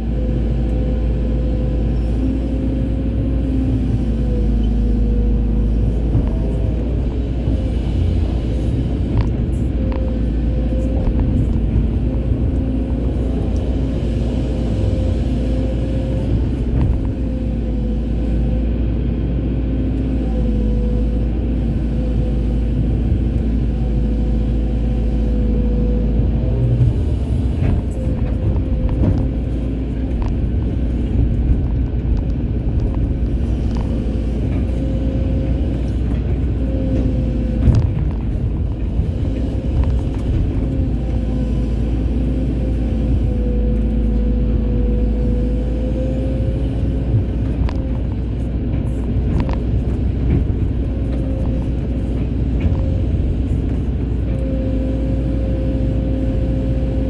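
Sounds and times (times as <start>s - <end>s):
excavator engine and hydraulics: 0.0s - 57.0s.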